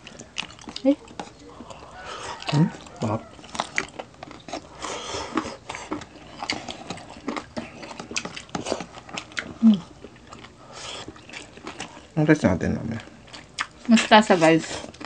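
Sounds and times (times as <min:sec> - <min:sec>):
low hummed murmur: 0:00.0 - 0:15.0
people chewing food: 0:00.0 - 0:15.0.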